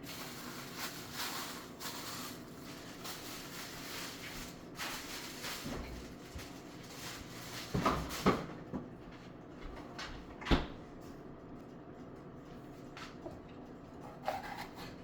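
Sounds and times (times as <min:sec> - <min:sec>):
kitchen knocks and clunks: 0:07.6 - 0:08.9, 0:09.6 - 0:10.8.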